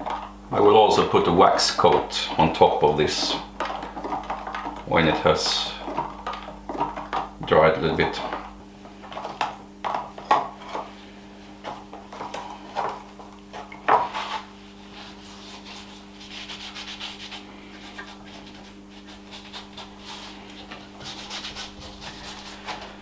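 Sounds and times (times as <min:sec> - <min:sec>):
cloth rubbing on wood: 0:14.0 - 0:23.0.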